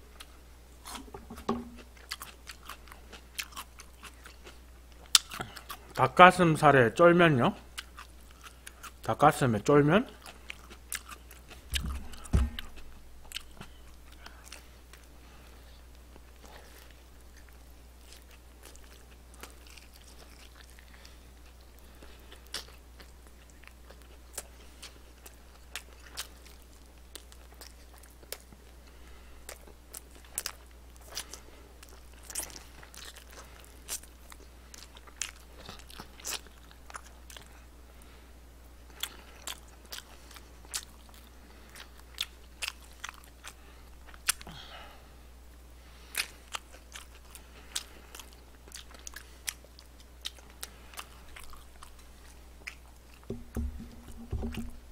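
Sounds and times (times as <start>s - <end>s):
faint low hum: 0.0s - 54.9s
crunching fried chicken: 1.8s - 6.1s, 10.0s - 15.1s, 16.3s - 28.8s, 29.4s - 37.6s, 38.9s - 44.6s.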